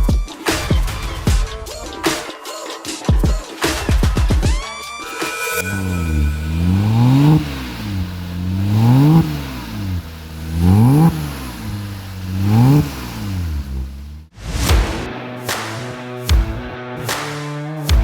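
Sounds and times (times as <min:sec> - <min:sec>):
car engine revving: 0:05.5 - 0:15.1.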